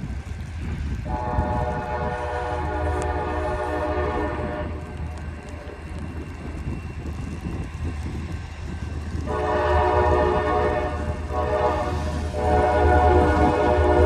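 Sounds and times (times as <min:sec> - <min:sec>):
locomotive engine rumble: 0:00.0 - 0:14.0
locomotive air horn: 0:01.1 - 0:05.2, 0:09.3 - 0:14.0.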